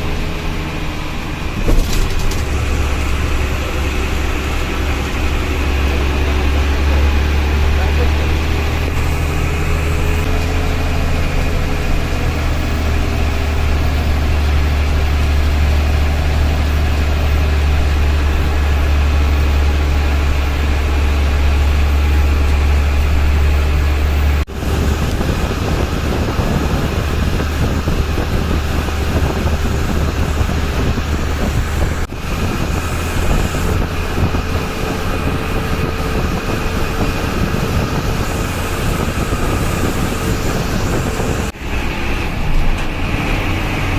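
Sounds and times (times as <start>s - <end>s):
bus diesel engine drone: 0.0s - 43.9s
road noise rush: 0.0s - 43.9s.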